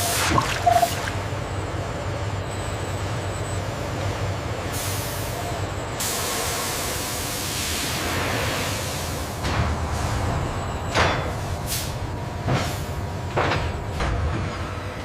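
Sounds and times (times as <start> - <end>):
factory machinery humming: 0.0 - 15.0
hiss: 6.0 - 9.3.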